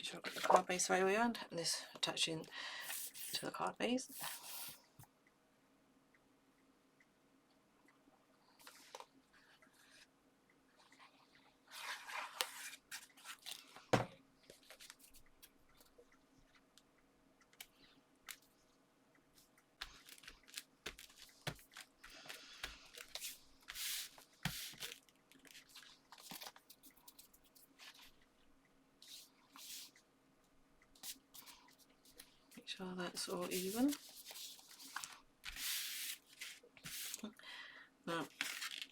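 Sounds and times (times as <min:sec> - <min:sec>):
paper rustling and scraping: 0:11.7 - 0:13.9, 0:19.8 - 0:28.1, 0:33.2 - 0:37.2, 0:38.3 - 0:38.9.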